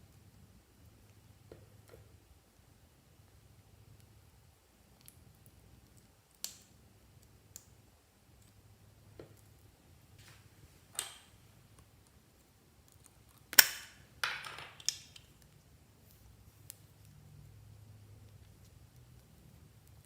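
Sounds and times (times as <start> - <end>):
sticky clicks of slime mixing: 4.8 - 9.7.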